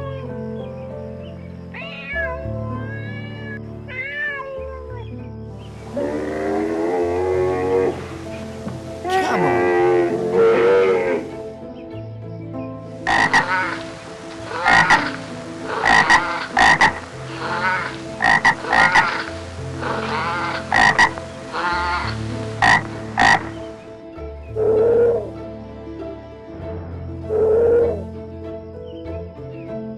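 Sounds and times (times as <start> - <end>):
frog croaking: 0.0 - 11.6, 12.9 - 24.0.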